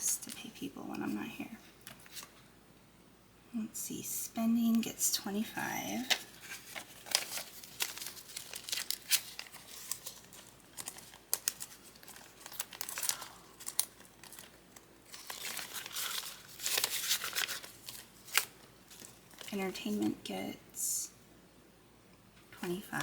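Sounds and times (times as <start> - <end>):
paper banknotes rustling: 6.0 - 20.2.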